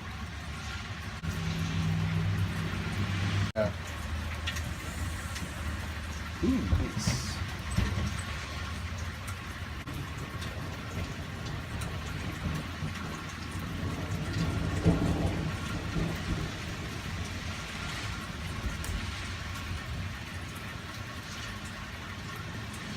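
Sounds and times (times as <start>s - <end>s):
steady rain falling: 0.0s - 22.9s
low rumble: 1.1s - 10.0s.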